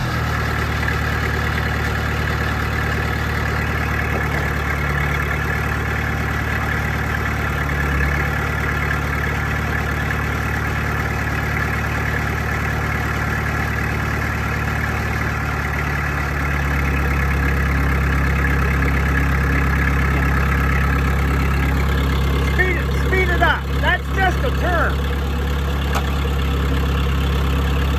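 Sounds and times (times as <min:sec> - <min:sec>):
diesel engine idling: 0:00.0 - 0:27.9.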